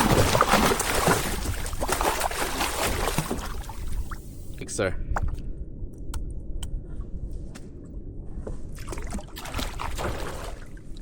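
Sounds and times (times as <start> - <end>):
water splashing against a kayak: 0.0 - 4.4, 8.8 - 11.0
steady low rumble: 0.0 - 11.0.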